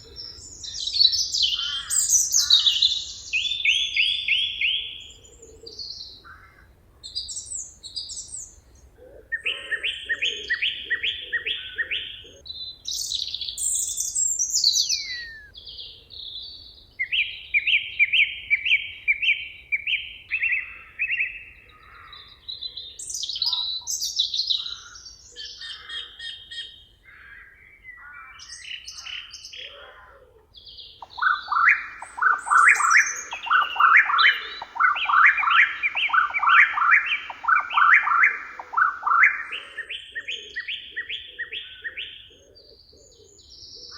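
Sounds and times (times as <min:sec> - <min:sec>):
songbirds singing: 0:00.0 - 0:43.9
bird falling whistle: 0:14.8 - 0:15.5, 0:31.0 - 0:39.6.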